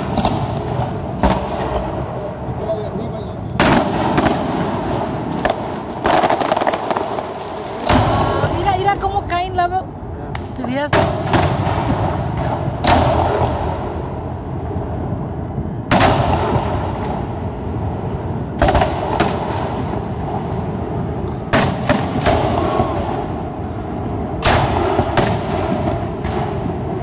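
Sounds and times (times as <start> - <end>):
steady background din: 0.0 - 27.0
firework shells bursting: 3.5 - 8.5.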